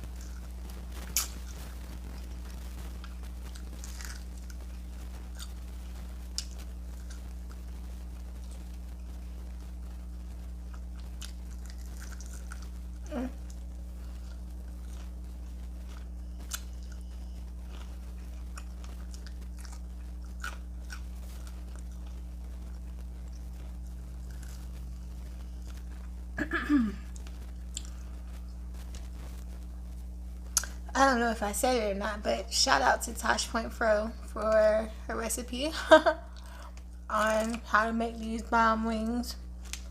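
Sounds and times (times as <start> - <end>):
crunching and chewing: 0.0 - 26.4, 27.0 - 29.6, 30.5 - 30.8, 36.2 - 37.8, 39.5 - 39.9
low electrical hum: 0.0 - 39.9.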